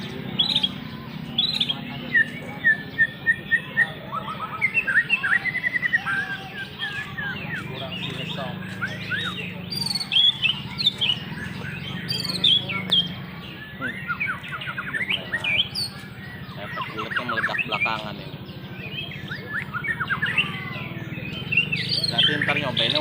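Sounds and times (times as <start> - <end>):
songbirds chirping and trilling: 0.0 - 23.0.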